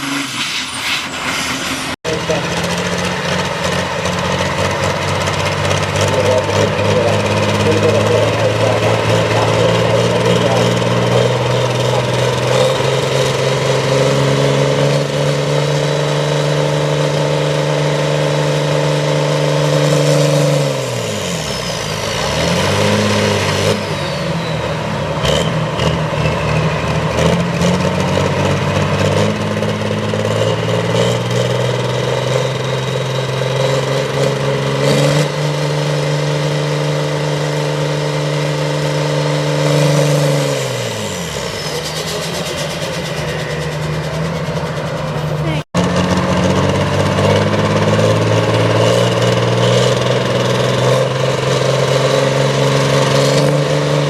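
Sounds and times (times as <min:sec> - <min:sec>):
tractor engine revving under load: 0:00.0 - 0:54.0.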